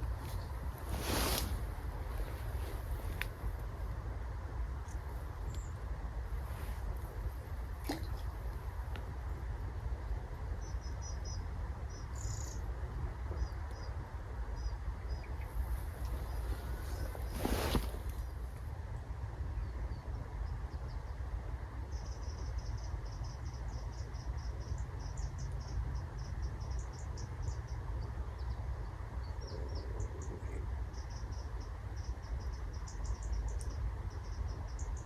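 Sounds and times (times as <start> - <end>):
small bird chirping: 10.6 - 12.7, 21.9 - 35.0.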